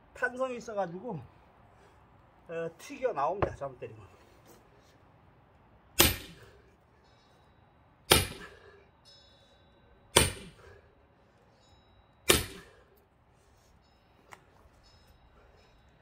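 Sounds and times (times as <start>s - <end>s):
axe chopping log: 6.0s - 6.4s, 8.1s - 8.6s, 10.2s - 10.6s, 12.3s - 12.7s.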